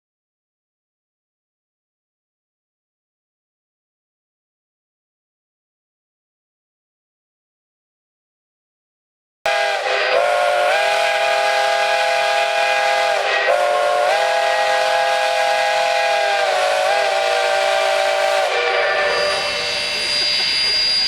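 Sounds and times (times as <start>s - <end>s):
hiss of steam: 9.5s - 21.0s
steam locomotive whistle blowing: 9.5s - 21.0s.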